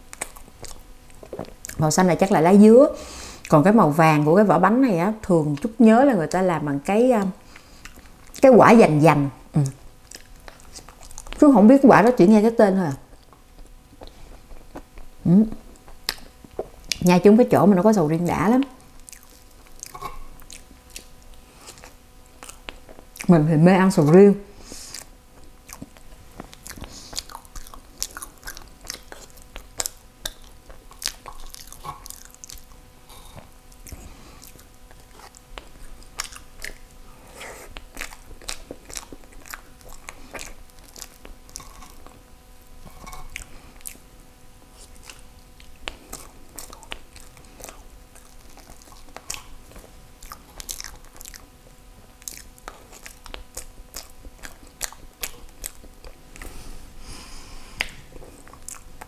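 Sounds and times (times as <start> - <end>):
close chewing: 0.0 - 2.4, 7.2 - 8.5, 9.6 - 12.2, 13.0 - 17.0, 18.6 - 59.0
mouth clicks and smacks: 0.1 - 1.8, 9.6 - 11.4, 13.1 - 17.0, 19.0 - 23.3, 24.9 - 32.8, 33.4 - 42.2, 44.8 - 51.6, 52.2 - 56.5, 57.8 - 59.0.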